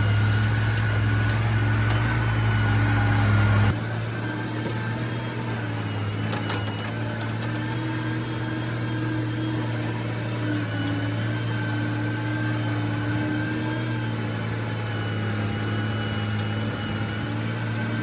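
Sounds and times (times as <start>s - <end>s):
diesel engine droning: 0.0s - 18.0s.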